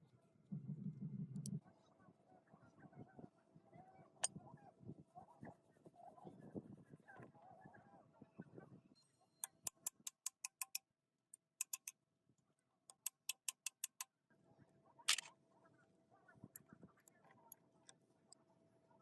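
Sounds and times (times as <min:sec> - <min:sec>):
sharp ticking clicks: 0:11.6 - 0:11.9, 0:12.9 - 0:14.0.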